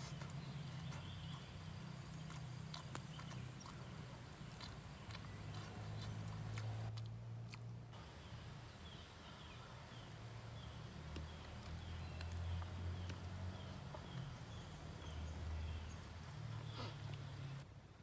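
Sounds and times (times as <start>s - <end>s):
bird chirping: 0.2s - 3.9s
insects droning: 8.0s - 17.6s.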